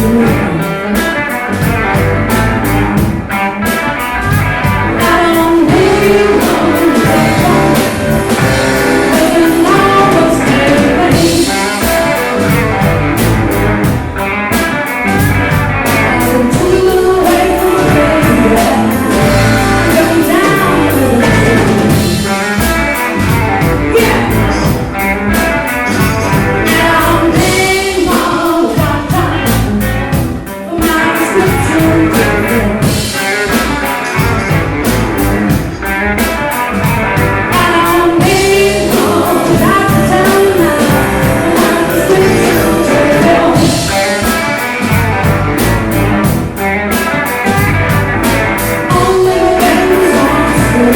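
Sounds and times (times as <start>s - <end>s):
person singing: 0.0s - 1.4s, 4.6s - 12.9s, 15.9s - 34.6s, 37.5s - 45.2s, 48.6s - 50.9s
blues-rock song: 0.0s - 50.9s
guitar: 0.0s - 50.9s
steady drum beat: 0.0s - 50.9s.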